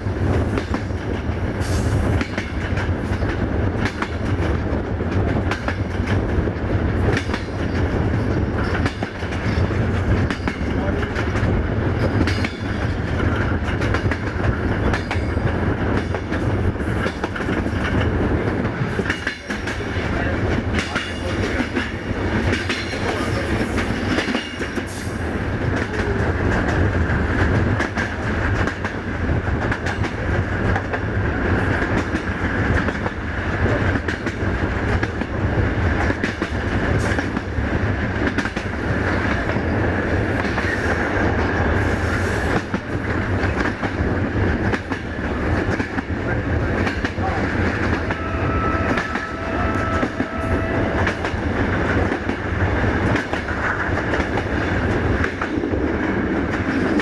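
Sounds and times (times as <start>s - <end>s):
train wheels rumbling: 0.0s - 57.0s
wheels clacking over rail joints: 0.4s - 25.0s.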